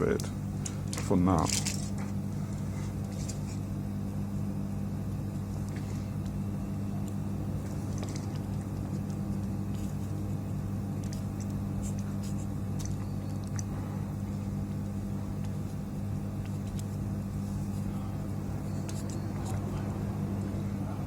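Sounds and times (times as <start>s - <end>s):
electrical device humming: 0.0s - 21.0s.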